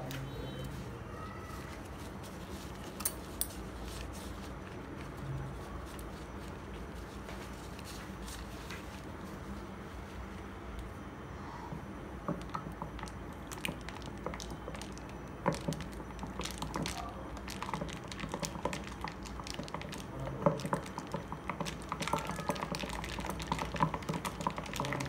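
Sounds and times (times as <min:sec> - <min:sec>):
stick stirring wet slime: 0:00.1 - 0:11.0, 0:11.6 - 0:25.0.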